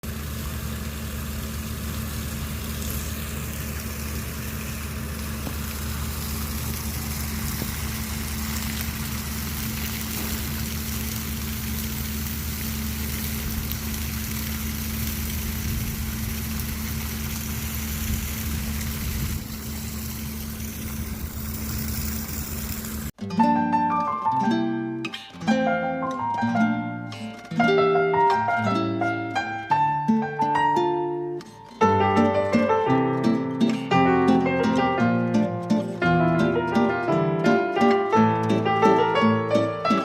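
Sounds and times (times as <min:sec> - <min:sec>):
low engine-like hum: 0:00.0 - 0:23.1
constant hiss: 0:00.1 - 0:23.1.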